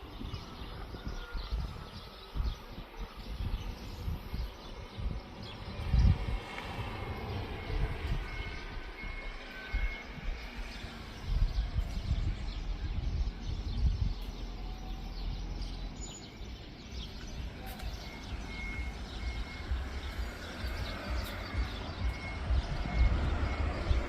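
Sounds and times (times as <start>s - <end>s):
faint high chirp: 13.6s - 24.0s.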